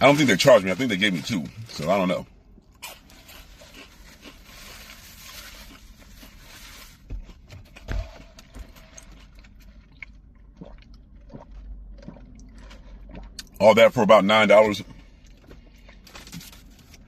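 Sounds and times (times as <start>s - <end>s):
paper wrapper rustling: 3.4s - 7.1s.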